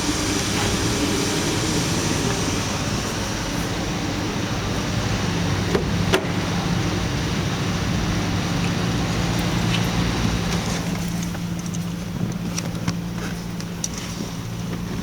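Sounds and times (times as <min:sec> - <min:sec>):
petrol engine idling: 0:00.0 - 0:11.7.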